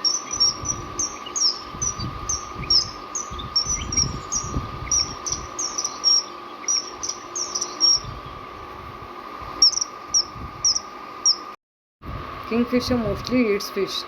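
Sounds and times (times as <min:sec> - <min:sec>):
bird calling sharp high notes: 0:00.0 - 0:08.2
steady high hum: 0:00.0 - 0:14.0.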